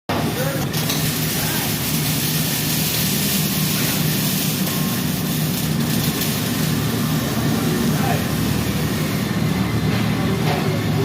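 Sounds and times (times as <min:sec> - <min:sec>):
welding arc crackling hiss: 0:00.1 - 0:11.0.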